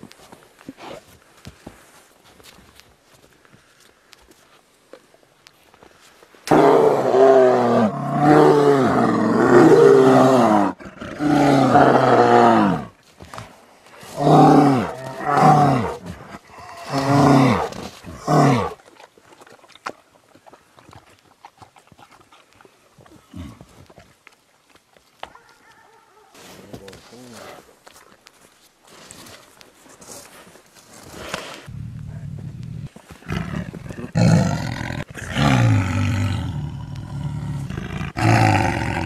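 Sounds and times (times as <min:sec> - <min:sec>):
large animal roaring: 0:06.5 - 0:12.9, 0:14.2 - 0:18.8, 0:33.2 - 0:39.0.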